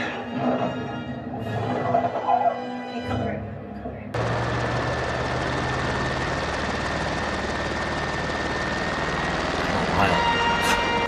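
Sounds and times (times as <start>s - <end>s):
helicopter rotor chop: 4.1s - 11.0s.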